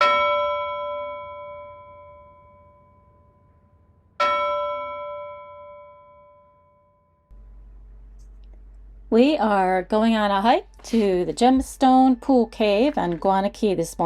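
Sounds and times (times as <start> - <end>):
bell ringing: 0.0 - 3.6, 4.2 - 7.3.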